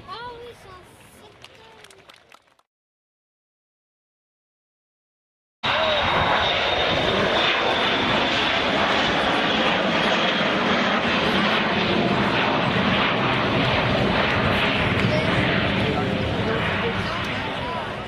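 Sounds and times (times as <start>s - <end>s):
jet engines roaring in flight: 5.6s - 18.0s.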